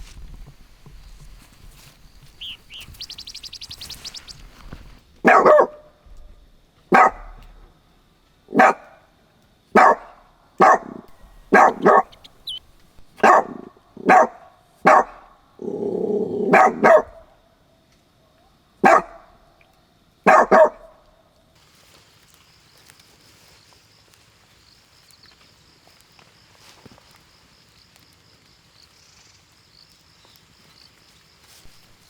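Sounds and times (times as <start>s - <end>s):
rough low animal sound: 0.0s - 5.0s
dog-like animal barking: 5.2s - 5.9s, 6.9s - 7.5s, 8.5s - 9.0s, 9.8s - 17.3s, 18.8s - 19.4s, 20.2s - 21.0s.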